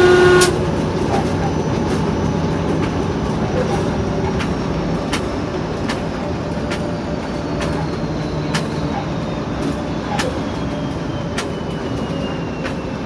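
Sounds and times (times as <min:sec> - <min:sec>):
turbocharger whistle: 0:00.0 - 0:01.4, 0:06.3 - 0:13.0
diesel locomotive rumble: 0:00.0 - 0:13.0.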